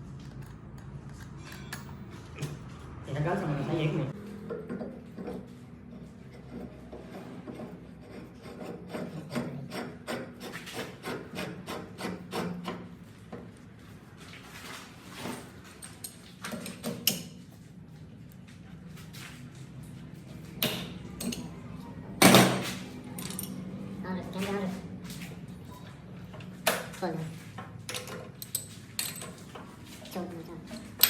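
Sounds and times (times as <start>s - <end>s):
rasping strokes: 6.3s - 12.8s.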